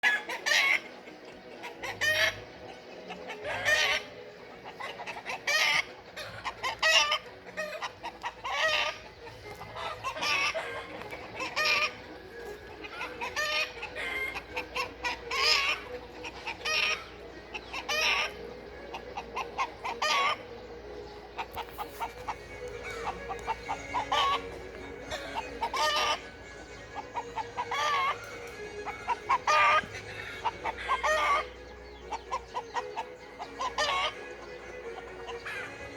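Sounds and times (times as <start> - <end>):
chicks peeping: 0.0 - 35.9
hen clucking: 0.0 - 35.9.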